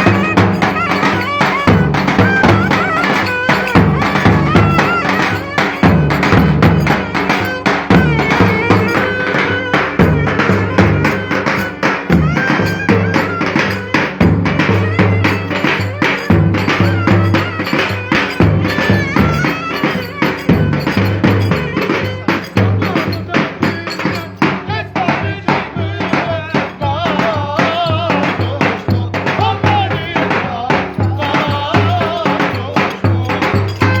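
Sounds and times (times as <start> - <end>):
wavering melody line: 0.0 - 14.1
fast steady drum beat: 0.0 - 34.0
folk dance music band: 0.0 - 34.0.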